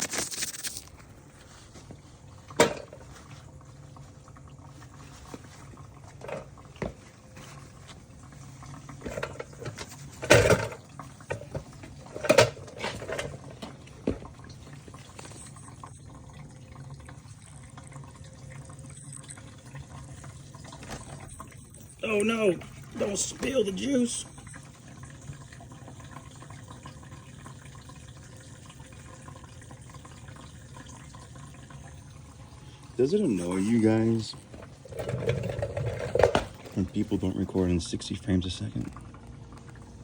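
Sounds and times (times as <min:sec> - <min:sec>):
fuel pouring into tank: 0:00.0 - 0:40.0.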